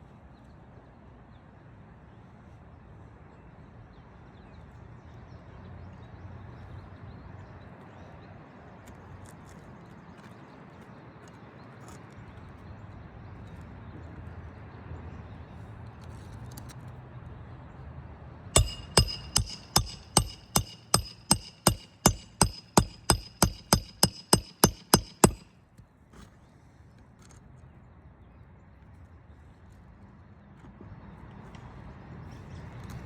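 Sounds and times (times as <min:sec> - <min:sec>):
hammer striking metal: 0:18.6 - 0:25.5.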